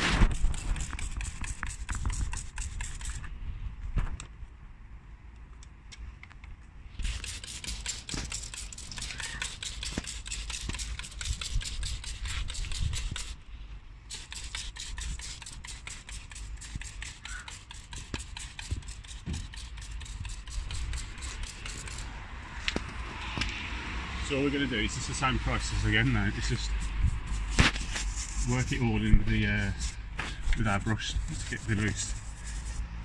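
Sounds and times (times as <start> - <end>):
brush scrubbing engine surfaces: 0.0 - 3.2, 7.0 - 13.4, 14.1 - 23.4, 24.8 - 33.0.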